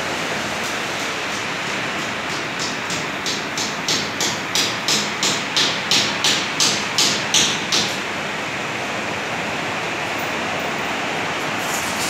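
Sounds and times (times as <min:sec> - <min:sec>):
rain hiss: 0:11.0 - 0:12.0.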